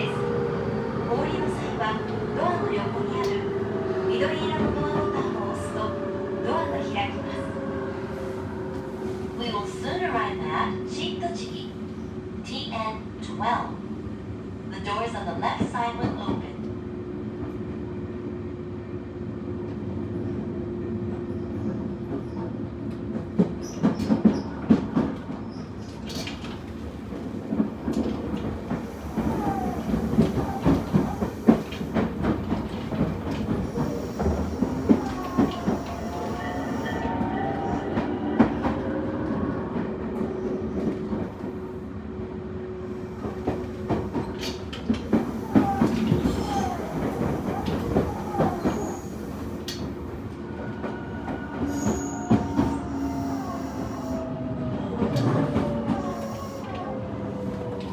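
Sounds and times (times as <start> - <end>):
wheels clacking over rail joints: 25.9 - 38.0, 43.2 - 50.3
electric train motor hum: 26.7 - 37.9, 44.9 - 50.4, 52.3 - 54.2, 55.9 - 56.8
brief squealing glides: 45.5 - 49.8, 51.6 - 54.2.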